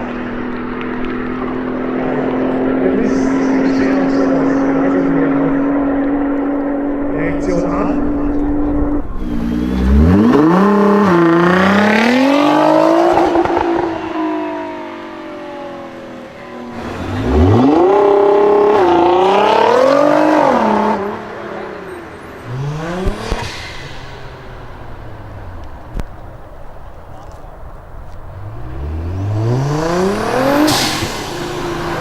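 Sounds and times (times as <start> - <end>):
car accelerating hard: 0.0 - 32.0.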